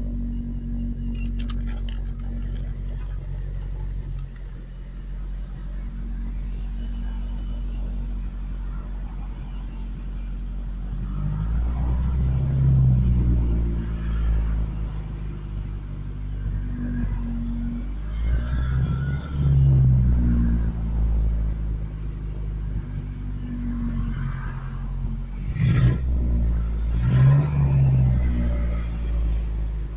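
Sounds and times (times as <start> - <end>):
truck engine idling and revving: 0.0 - 29.9.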